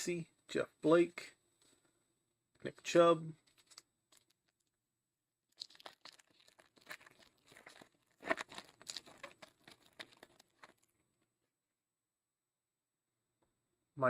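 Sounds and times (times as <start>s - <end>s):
foil wrapper tearing and crinkling: 5.5s - 10.9s.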